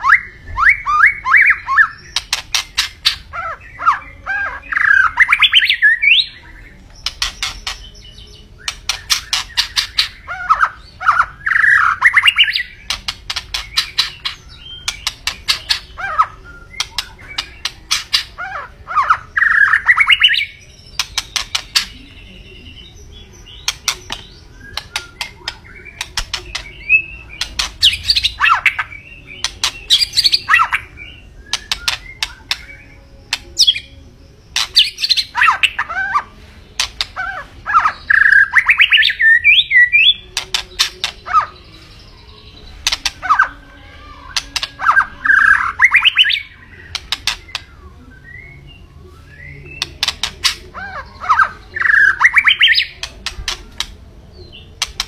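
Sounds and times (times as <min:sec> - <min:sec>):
bird singing clicks and whistles: 0:07.0 - 0:07.8, 0:08.6 - 0:10.1, 0:16.7 - 0:18.3, 0:21.0 - 0:22.0, 0:23.6 - 0:26.8, 0:27.4 - 0:30.8, 0:31.4 - 0:33.8, 0:42.8 - 0:43.4, 0:44.3 - 0:47.7, 0:49.7 - 0:50.7, 0:51.3 - 0:54.0, 0:54.8 - 0:55.0.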